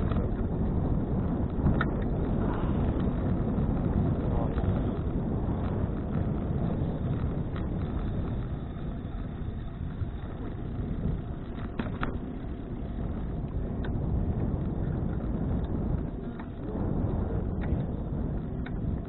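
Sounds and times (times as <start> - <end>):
wind buffeting microphone: 0.0 - 19.0
faint clicks: 18.6 - 18.9.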